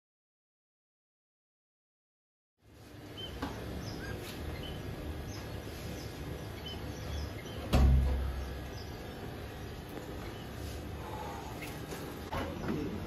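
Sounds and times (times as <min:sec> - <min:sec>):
steady background noise: 0:02.6 - 0:13.0
heavy low thump: 0:07.7 - 0:08.4.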